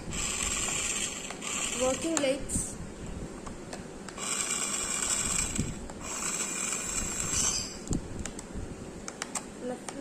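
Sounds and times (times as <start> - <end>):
toy car motor and gears whirring: 0.1 - 2.4, 4.2 - 7.8.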